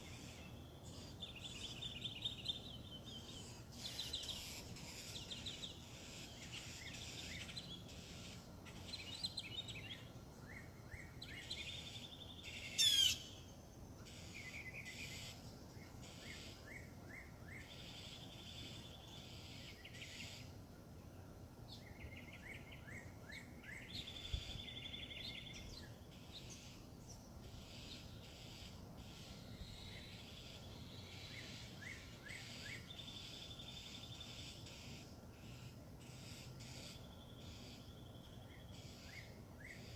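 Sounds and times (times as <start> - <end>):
songbirds singing: 0.0 - 39.9
loud sweeping bird call: 11.4 - 13.4.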